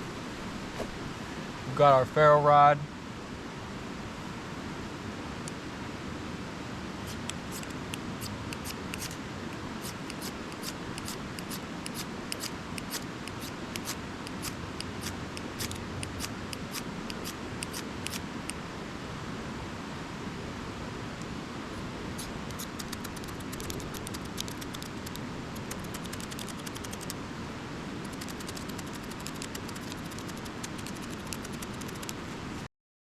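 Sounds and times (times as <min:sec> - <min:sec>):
background hiss: 0:00.0 - 0:32.7
ferro rod scraping: 0:07.1 - 0:09.2, 0:09.8 - 0:18.2.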